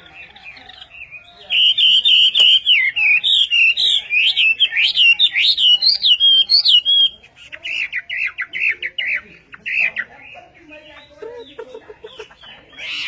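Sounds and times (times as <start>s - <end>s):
songbird whistling: 0.0s - 10.3s.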